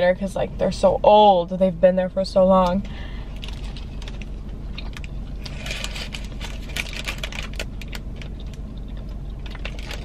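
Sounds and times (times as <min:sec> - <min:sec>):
paper wrapper rustling: 0:05.4 - 0:08.4.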